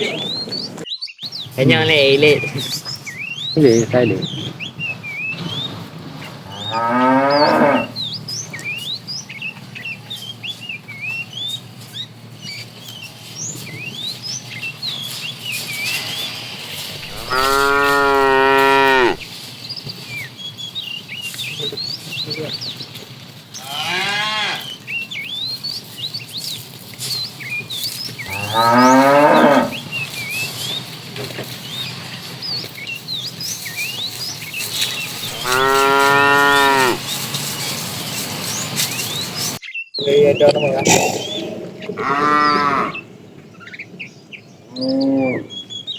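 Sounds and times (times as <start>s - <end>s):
small birds chirping: 0.0s - 45.9s
cattle mooing: 6.2s - 8.6s, 15.9s - 19.2s, 23.6s - 24.8s, 28.2s - 30.2s, 34.9s - 37.2s, 40.7s - 43.1s, 44.7s - 45.6s.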